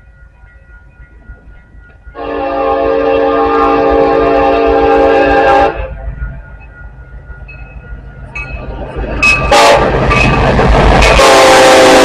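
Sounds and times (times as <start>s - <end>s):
train rumbling: 0.0s - 12.0s
locomotive air horn blast: 2.2s - 5.9s, 9.4s - 12.0s.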